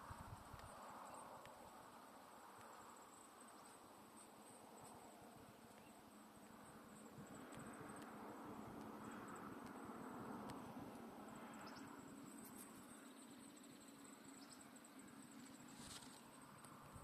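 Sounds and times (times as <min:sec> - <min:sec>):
faint chirps: 0:11.3 - 0:17.0
high-pitched insect trill: 0:11.3 - 0:17.0.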